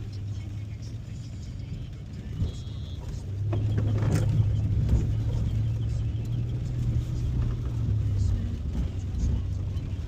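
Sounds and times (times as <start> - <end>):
car engine and road hum: 0.0 - 10.0.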